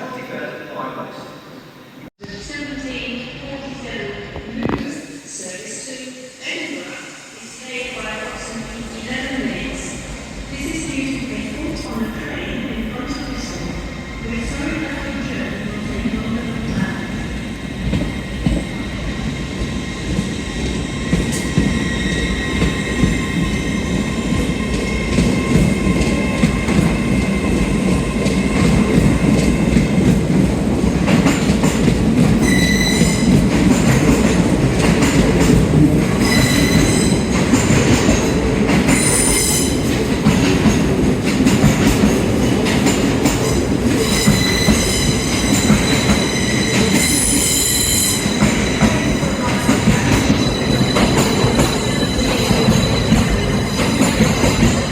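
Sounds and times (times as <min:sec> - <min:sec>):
train wheels rumbling: 0:07.4 - 0:54.9
high-pitched wheel squeal: 0:32.4 - 0:33.3.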